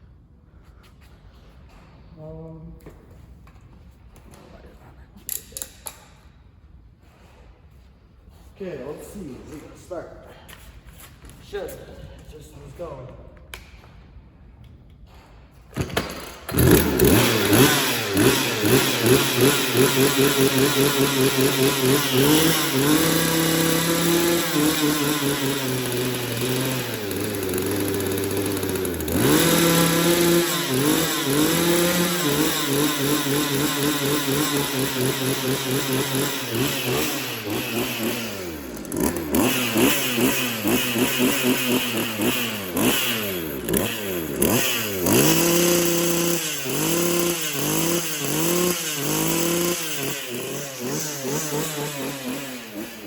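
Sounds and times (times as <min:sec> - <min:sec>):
person talking: 0:08.6 - 0:10.3
chainsaw revving and idling: 0:15.8 - 0:53.0.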